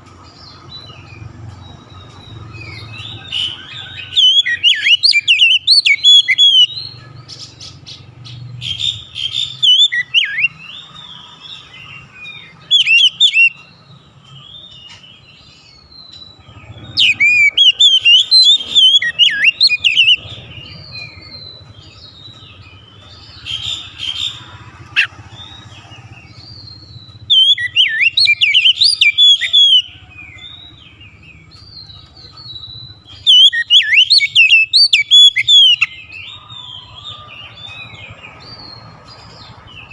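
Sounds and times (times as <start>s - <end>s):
songbird whistles and chirps: 0.1s - 39.9s.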